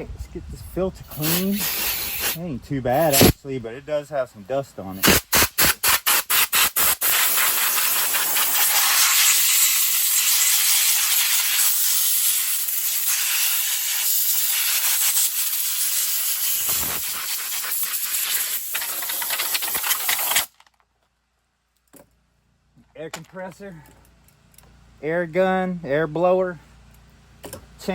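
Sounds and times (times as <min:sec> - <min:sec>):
compressed air blow gun hissing: 0:01.0 - 0:02.4, 0:03.0 - 0:03.4, 0:05.0 - 0:20.5.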